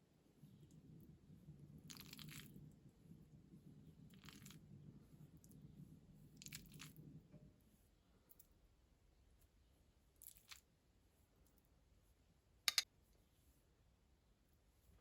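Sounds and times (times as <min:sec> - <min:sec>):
crisp food crunches: 0:10.2 - 0:10.6.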